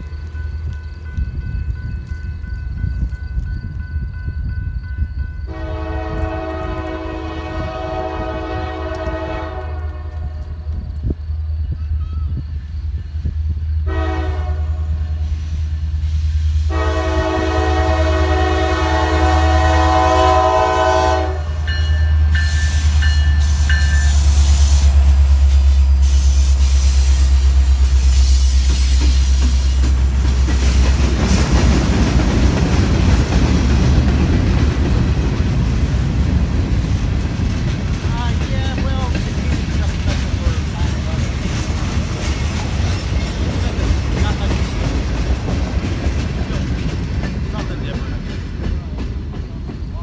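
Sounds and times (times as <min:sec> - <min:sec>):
freight cars rumbling on rails: 0:00.0 - 0:50.0
locomotive horn blasts: 0:05.5 - 0:10.8, 0:13.8 - 0:15.4, 0:16.7 - 0:24.9.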